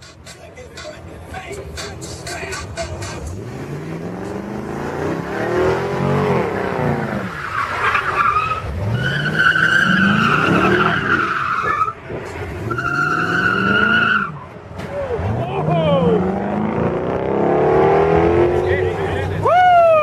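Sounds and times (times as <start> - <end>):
car engine revving: 0.0 - 19.5
tyres squealing: 7.0 - 15.3.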